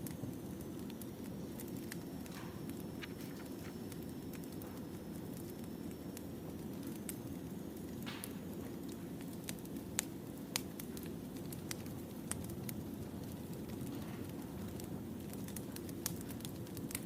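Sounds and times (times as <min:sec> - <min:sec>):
campfire crackling and popping: 0:06.1 - 0:17.0.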